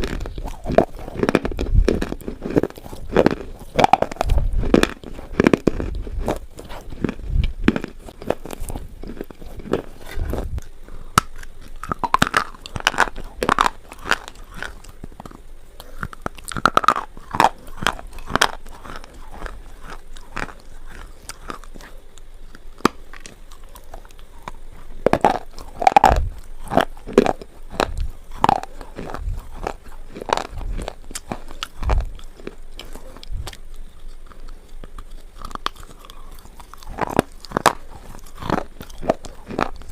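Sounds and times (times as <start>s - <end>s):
person crunching slate pencils: 0.0s - 39.9s.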